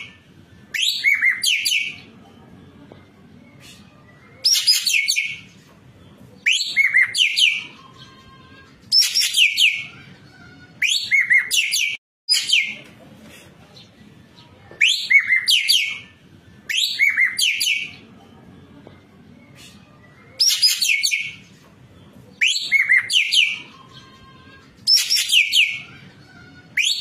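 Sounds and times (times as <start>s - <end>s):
bird singing whistled notes: 0.0s - 2.0s, 6.4s - 8.1s, 16.7s - 18.0s, 20.3s - 21.4s, 22.4s - 24.0s, 24.9s - 25.9s.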